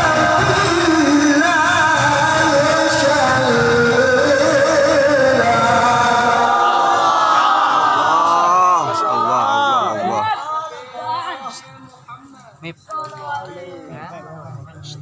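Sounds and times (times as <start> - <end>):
man reciting melodically: 0.0 - 6.6.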